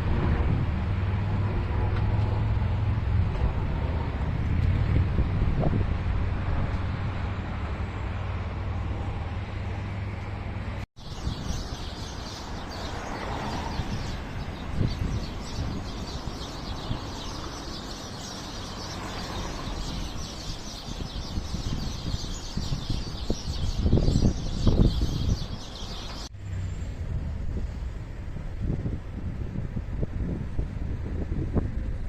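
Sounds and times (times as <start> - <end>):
small birds chirping: 11.0 - 26.3
low outdoor rumble: 25.4 - 32.0.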